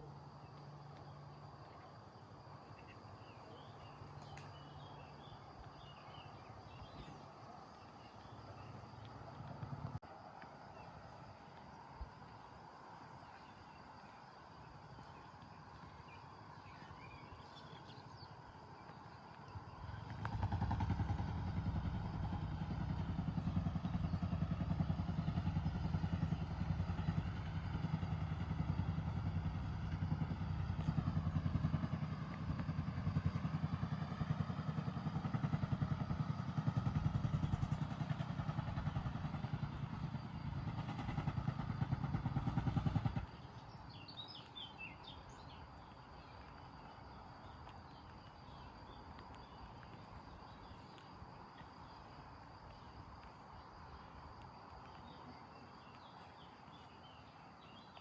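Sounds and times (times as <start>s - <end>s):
motor engine rumbling: 0.0s - 57.9s
bird chirping: 15.0s - 19.8s, 43.2s - 54.1s, 54.8s - 58.0s.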